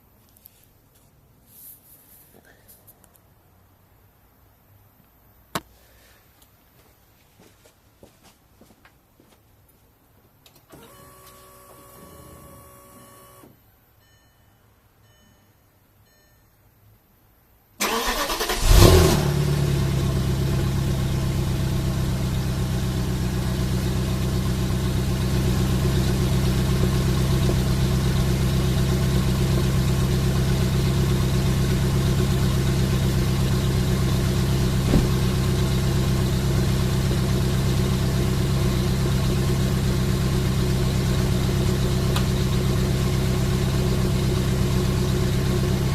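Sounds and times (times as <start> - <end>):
car engine starting and idling: 10.5 - 13.5, 17.8 - 45.9
short beeps: 14.0 - 16.7.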